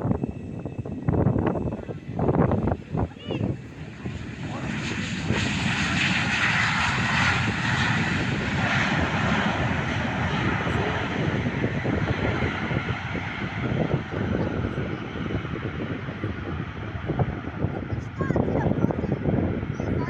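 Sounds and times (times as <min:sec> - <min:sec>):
jet engines passing: 0:00.0 - 0:20.0.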